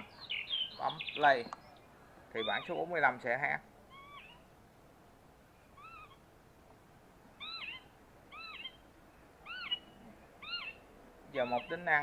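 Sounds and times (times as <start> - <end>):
recorded bird call from speaker: 0.0 - 3.1, 3.9 - 4.5, 5.7 - 6.2, 7.4 - 8.8, 9.4 - 12.0.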